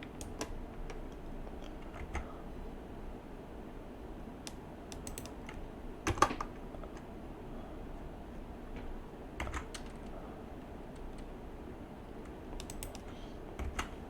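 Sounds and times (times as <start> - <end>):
faint background hum: 0.0 - 14.0
keyboard keys tapping: 12.2 - 14.0.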